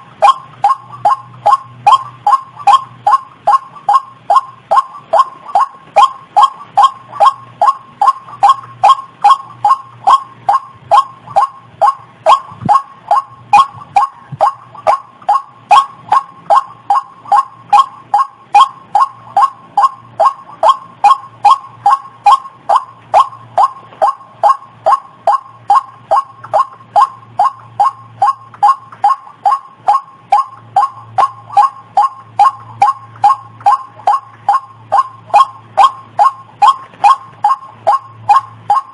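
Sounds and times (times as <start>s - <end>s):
waterhen calling: 0.0s - 38.9s.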